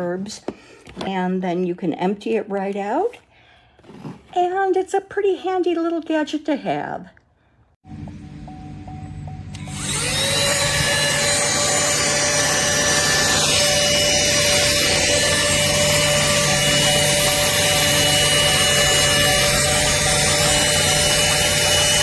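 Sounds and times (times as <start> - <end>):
mini vacuum motor whine: 9.5 - 22.0.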